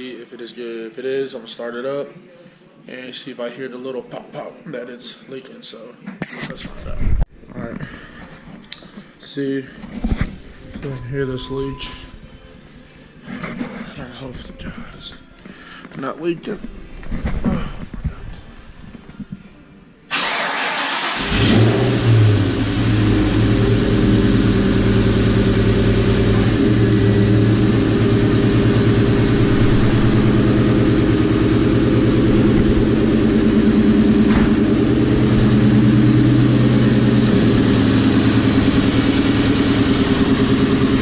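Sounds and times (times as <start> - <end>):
starter cranking engine: 20.1 - 22.2
car engine idling: 20.1 - 41.0.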